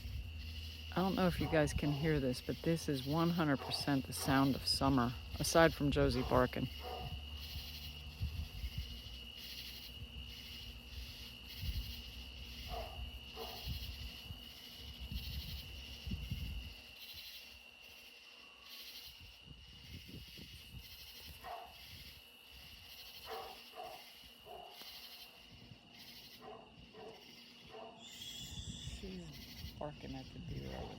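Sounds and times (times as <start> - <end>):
crickets and locusts chorus: 0.0 - 30.9
high-pitched insect trill: 0.0 - 30.9
dog barking faintly: 23.2 - 24.8, 30.6 - 30.9.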